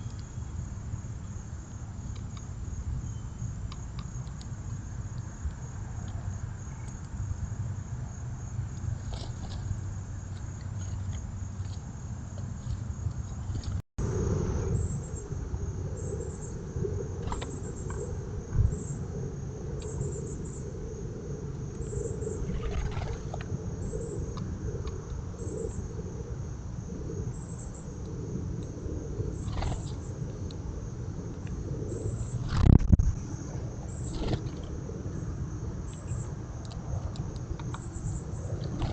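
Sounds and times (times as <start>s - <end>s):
low rumble: 30.7s - 35.8s.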